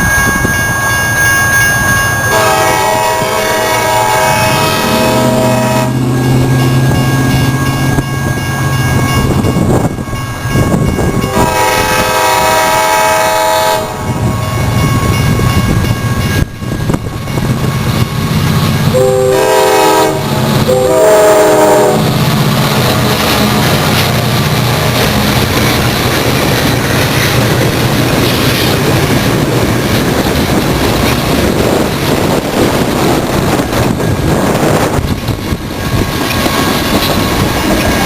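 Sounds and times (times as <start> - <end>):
train rumbling past: 0.0 - 38.0
locomotive air horn blasts: 2.3 - 6.1, 11.2 - 14.1, 18.9 - 22.2.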